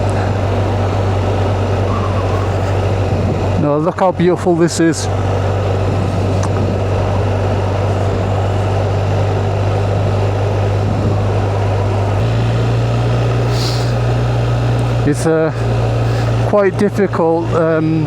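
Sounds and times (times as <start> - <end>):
wind noise: 0.0 - 4.5, 5.1 - 12.2
motorcycle engine cruising: 0.0 - 18.0.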